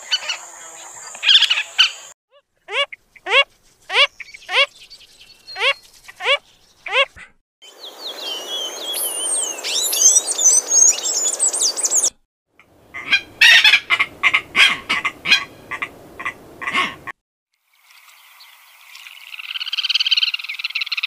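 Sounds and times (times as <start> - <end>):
small birds chirping: 0.0 - 12.2
bird giving harsh calls: 2.7 - 4.7, 5.5 - 7.3, 13.0 - 17.1.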